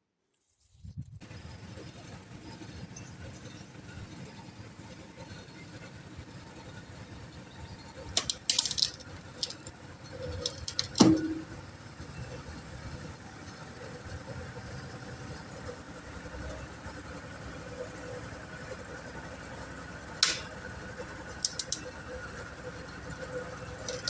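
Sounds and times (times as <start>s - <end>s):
combine harvester engine running: 1.2s - 24.0s
sharp clicks: 20.2s - 20.6s, 21.4s - 21.9s.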